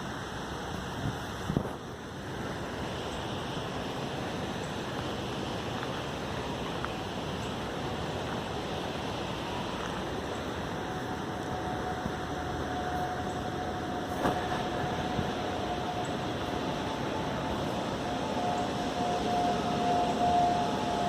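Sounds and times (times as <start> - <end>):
faint steady tone: 0.0 - 21.0
steady rushing noise: 0.0 - 21.0.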